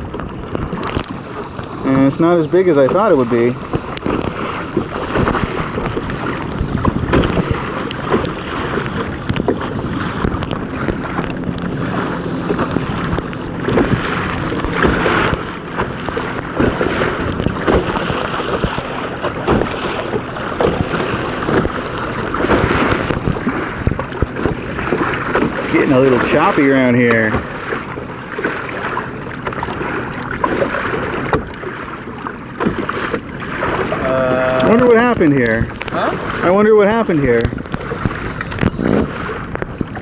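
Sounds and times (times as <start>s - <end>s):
water splashing against hulls: 0.0s - 40.0s
wind buffeting microphone: 0.0s - 40.0s.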